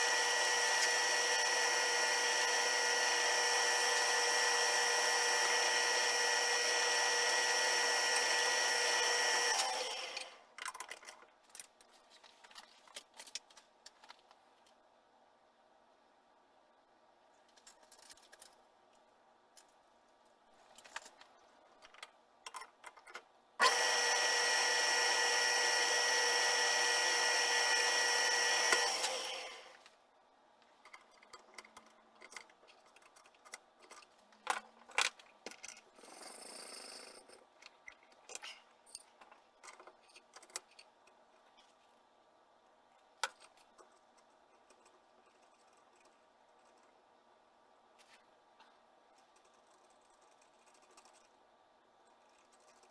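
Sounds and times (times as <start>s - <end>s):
power tool motor whine: 0.0s - 10.3s, 23.6s - 29.8s.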